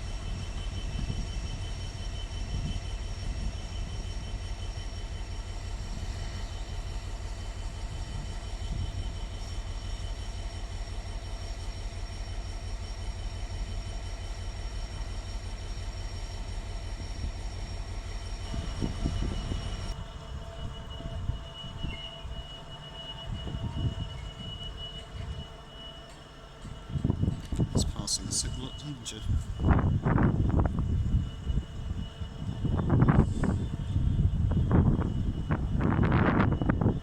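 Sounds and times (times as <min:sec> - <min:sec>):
train rumbling: 0:00.0 - 0:37.0
high whining tones: 0:18.4 - 0:37.0.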